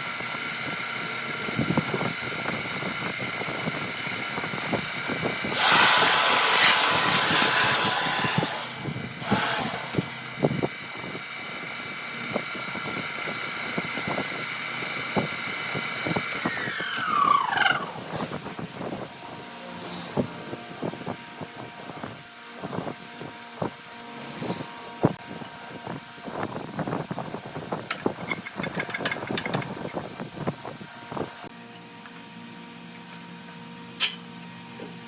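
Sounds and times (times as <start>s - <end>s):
power tool motor whine: 0.0s - 21.1s.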